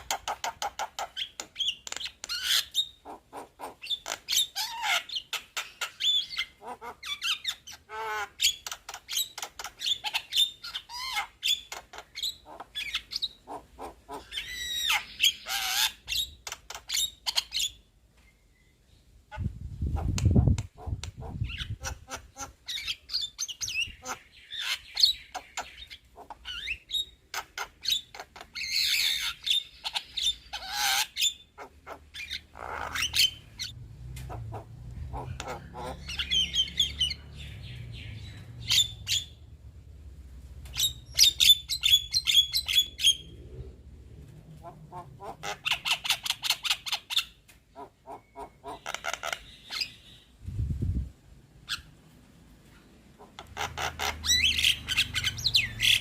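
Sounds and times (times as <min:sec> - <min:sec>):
low rumble: 0:43.2 - 0:45.3.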